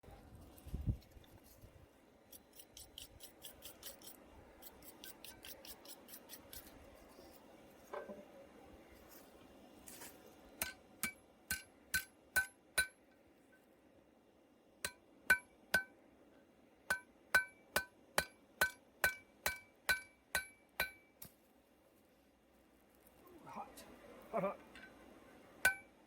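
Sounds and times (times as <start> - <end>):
hammer striking steel: 10.6 - 13.0, 14.8 - 16.0, 16.9 - 21.1, 25.6 - 25.9.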